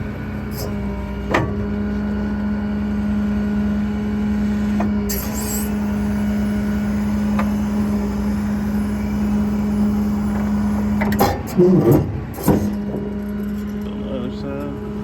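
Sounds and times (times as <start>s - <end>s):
hydraulic pump humming: 0.1s - 15.0s
hydraulic outriggers retracting: 4.6s - 15.0s.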